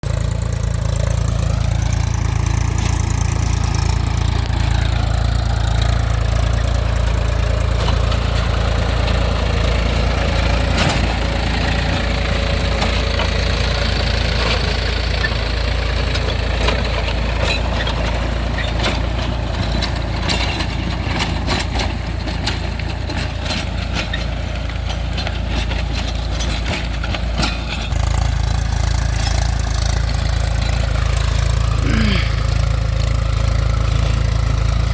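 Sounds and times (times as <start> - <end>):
tractor diesel engine rumbling: 0.0 - 34.9.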